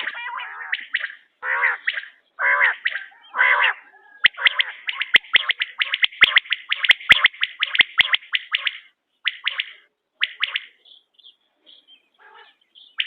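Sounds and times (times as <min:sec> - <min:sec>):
quail calling: 0:00.0 - 0:11.0, 0:12.1 - 0:13.0
sharp chirps and hard clicks: 0:00.8 - 0:02.2, 0:04.2 - 0:10.8.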